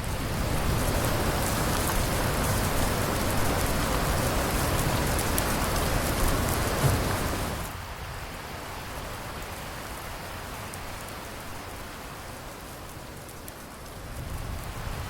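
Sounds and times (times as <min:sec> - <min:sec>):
thunder rumbling: 0:00.0 - 0:07.7
steady rain falling: 0:00.0 - 0:15.0.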